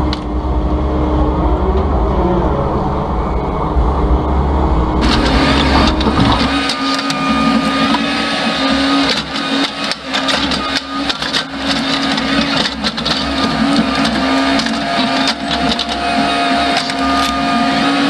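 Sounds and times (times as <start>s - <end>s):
excavator engine rumble: 0.0s - 18.0s
hydraulic hum: 0.0s - 18.0s.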